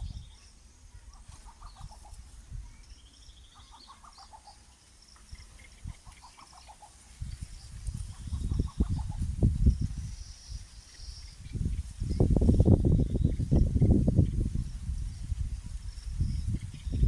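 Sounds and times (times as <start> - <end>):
high bird trill: 0.0 - 15.3
bird clucking calls: 1.0 - 2.4, 3.5 - 9.5.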